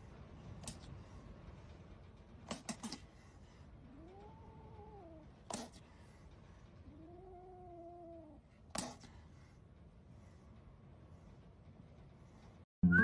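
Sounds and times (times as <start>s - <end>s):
cat meowing: 6.8s - 8.4s.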